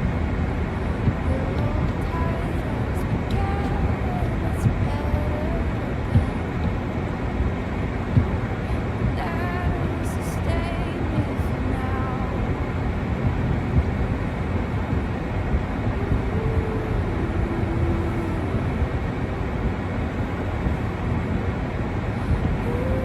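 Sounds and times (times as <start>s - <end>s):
wind buffeting microphone: 0.0s - 23.0s
faint held tone: 8.0s - 21.1s.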